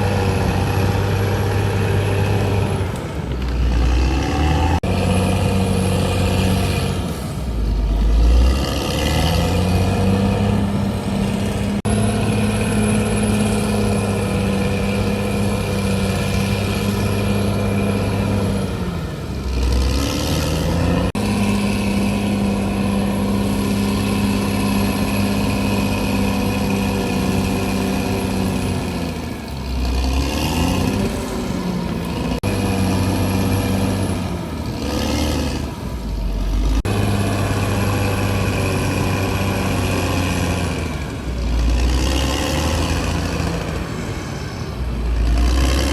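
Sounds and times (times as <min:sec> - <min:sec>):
bulldozer diesel engine running hard: 0:00.0 - 0:45.9.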